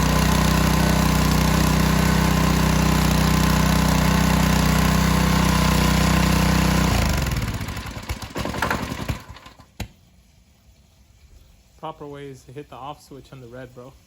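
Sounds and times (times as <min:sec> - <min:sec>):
small engine sputtering and dying: 0:00.0 - 0:09.7.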